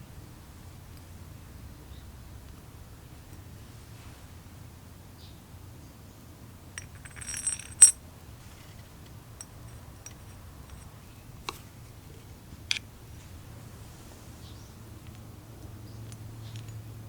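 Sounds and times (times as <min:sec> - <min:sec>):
metal parts clinking: 0:06.8 - 0:08.0, 0:09.4 - 0:10.9.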